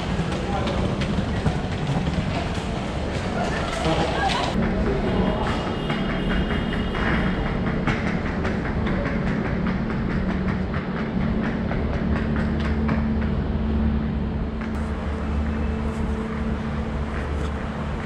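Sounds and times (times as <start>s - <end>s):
train hum: 0.0s - 18.0s
train wheels clicking on rails: 0.0s - 18.0s.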